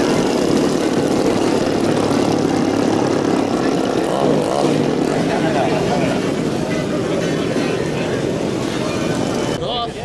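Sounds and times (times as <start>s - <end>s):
model airplane propeller running: 0.0s - 4.0s.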